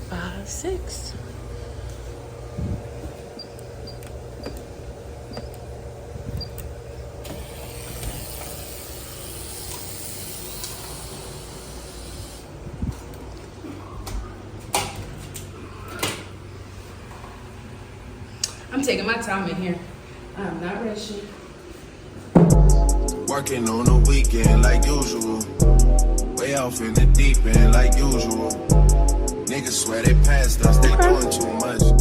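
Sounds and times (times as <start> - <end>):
ventilation hum: 0.0 - 32.0
shower water spraying: 7.2 - 12.6
sharp knocks: 22.4 - 22.8.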